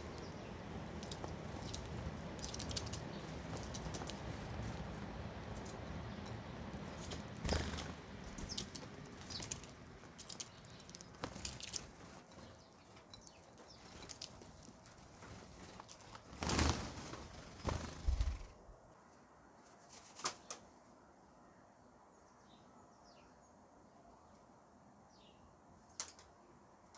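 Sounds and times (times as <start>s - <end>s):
birds pecking with sharp taps: 0.0s - 18.4s
rustling: 0.0s - 18.8s.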